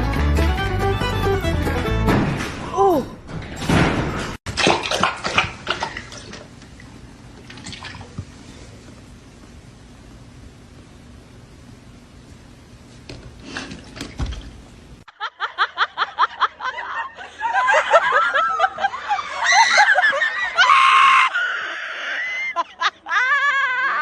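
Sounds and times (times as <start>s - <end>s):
loud laughter and shrieks: 15.3s - 24.0s.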